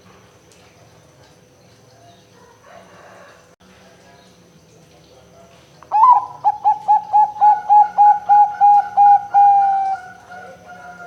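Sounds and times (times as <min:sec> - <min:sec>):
dove cooing: 0:05.9 - 0:11.0.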